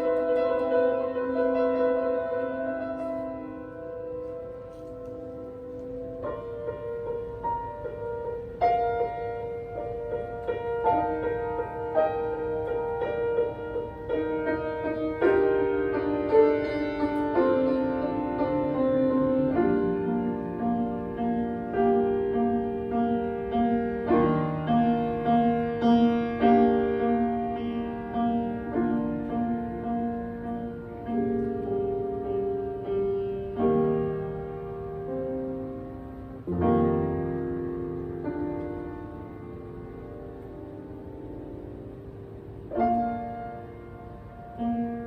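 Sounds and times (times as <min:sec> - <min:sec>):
solo piano playing: 0:00.0 - 0:45.0.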